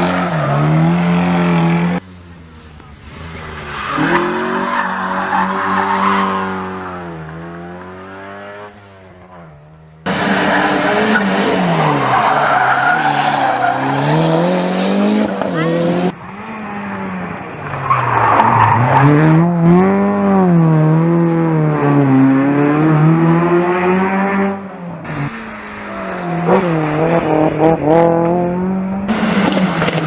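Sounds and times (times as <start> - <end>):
rally car engines revving: 0.0 - 30.0
tyres squealing: 3.4 - 7.3, 9.3 - 14.2.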